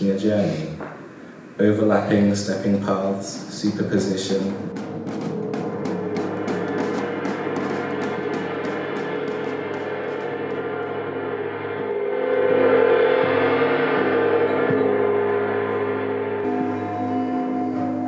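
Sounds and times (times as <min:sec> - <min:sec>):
large metal percussion ringing: 0:03.5 - 0:18.0.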